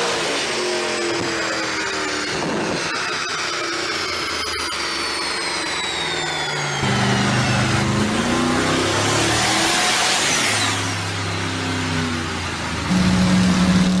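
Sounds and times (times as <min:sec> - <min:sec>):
high whine falling in pitch: 0:00.4 - 0:09.4, 0:10.6 - 0:14.0
car engine running: 0:06.8 - 0:10.2, 0:10.8 - 0:14.0.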